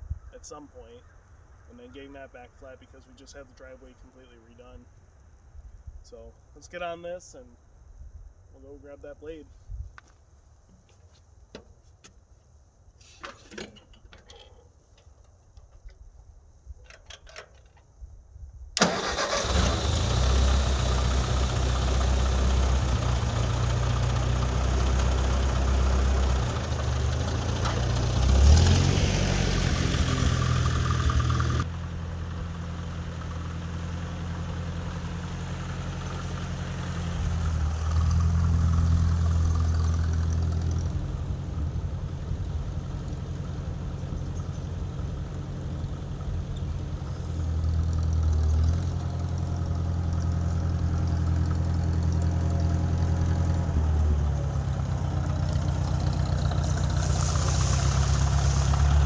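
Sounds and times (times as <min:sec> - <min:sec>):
tractor engine running: 0:18.8 - 0:59.0.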